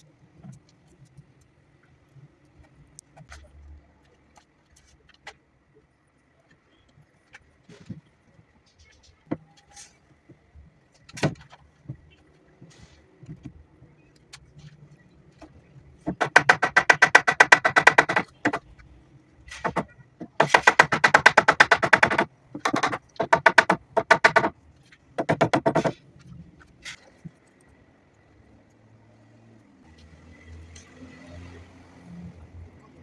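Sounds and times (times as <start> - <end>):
power tool hammering rattle: 16.1 - 18.7, 19.6 - 24.5, 25.2 - 26.0.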